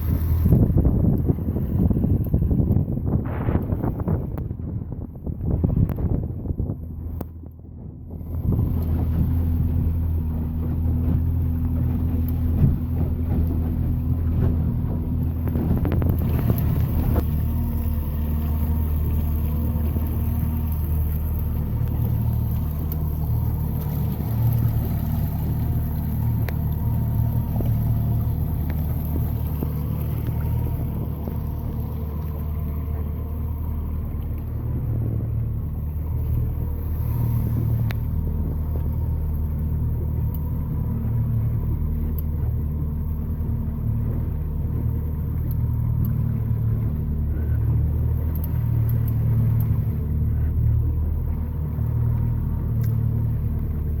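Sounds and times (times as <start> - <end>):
outboard motor droning: 0.0 - 54.0.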